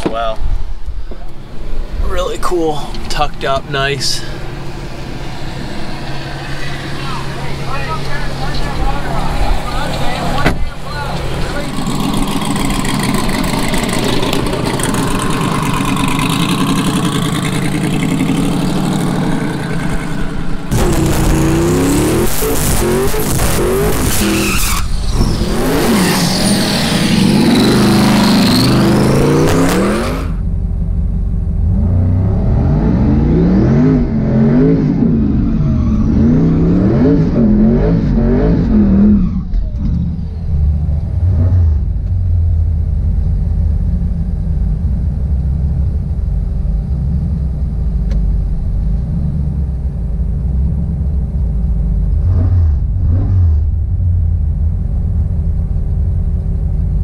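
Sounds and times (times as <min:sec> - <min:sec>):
engines rumbling: 0:00.0 - 0:57.0
drag car engine at full throttle: 0:02.9 - 0:57.0
engine revving: 0:04.0 - 0:30.5, 0:31.5 - 0:42.5, 0:52.1 - 0:54.2.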